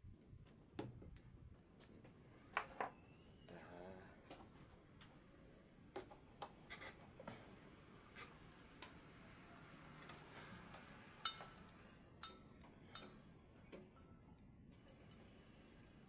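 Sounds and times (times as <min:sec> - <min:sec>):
tools clicking and tapping: 0:11.2 - 0:14.0.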